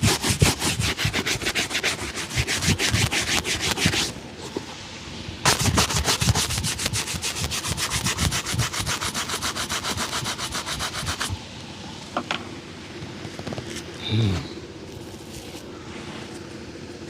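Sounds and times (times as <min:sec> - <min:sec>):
shoe being buffed: 0:00.0 - 0:04.7, 0:05.5 - 0:11.4.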